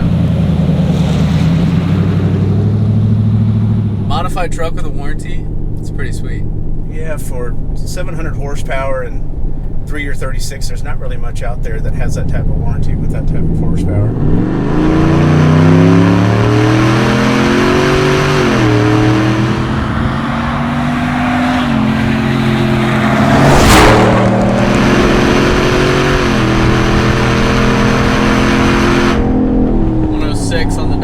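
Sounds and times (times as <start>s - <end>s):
truck engine accelerating hard: 0.0s - 9.4s, 11.8s - 31.0s
loud rush of noise: 16.1s - 29.2s.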